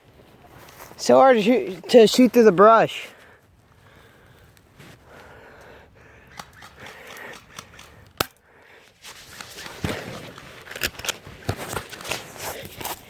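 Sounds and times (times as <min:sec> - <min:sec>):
sharp crack: 0:06.2 - 0:08.5.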